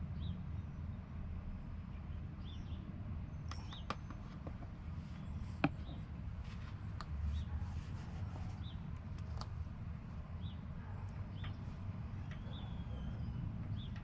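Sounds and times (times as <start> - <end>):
low steady rumble: 0.0 - 14.0
small bird chirping: 2.4 - 6.1, 10.4 - 14.0
handling clicks and taps: 3.5 - 4.8, 5.6 - 7.2.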